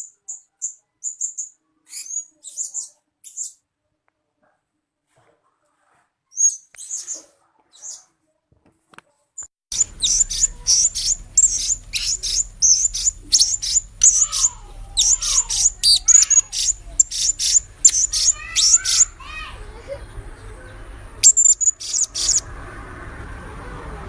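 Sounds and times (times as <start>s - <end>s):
parrot calling: 9.7s - 19.6s, 21.2s - 22.5s
low hum: 9.7s - 24.0s.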